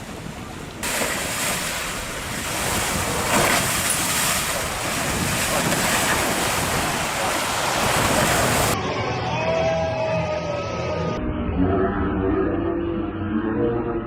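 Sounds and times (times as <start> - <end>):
rushing water and waves: 0.0 - 8.8
wind buffeting microphone: 0.0 - 8.8.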